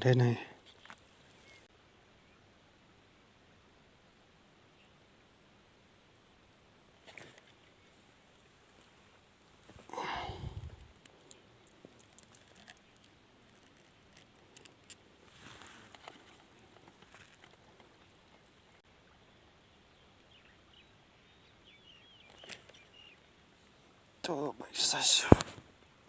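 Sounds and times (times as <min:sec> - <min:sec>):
faint ticks and rustles: 0:00.1 - 0:01.7, 0:07.0 - 0:18.8.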